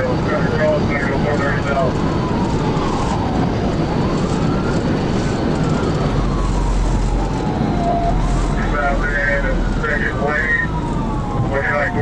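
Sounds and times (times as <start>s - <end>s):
police siren wailing: 0.0s - 12.0s
road and engine noise: 0.0s - 12.0s.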